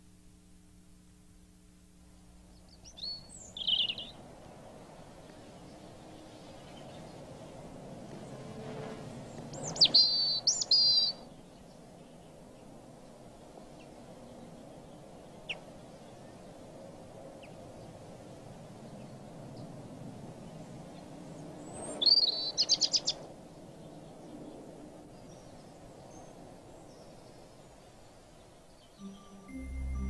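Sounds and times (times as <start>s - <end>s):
faint background ambience: 0.0s - 30.0s
bird chirping: 2.5s - 4.2s, 9.3s - 12.1s, 21.8s - 23.2s, 28.7s - 30.0s.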